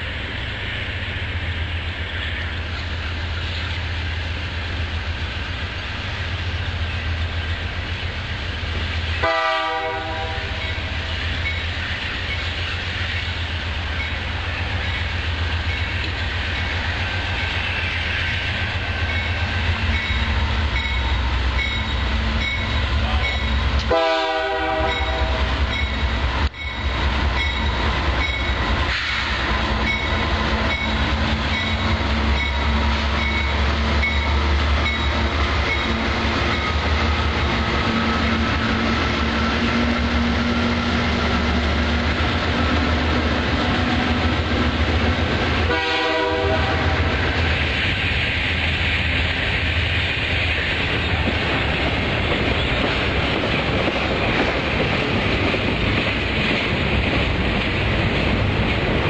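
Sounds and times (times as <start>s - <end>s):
diesel locomotive engine rumble: 0.0s - 59.0s
locomotive horn blast: 9.2s - 10.9s, 23.0s - 25.6s, 45.6s - 47.2s.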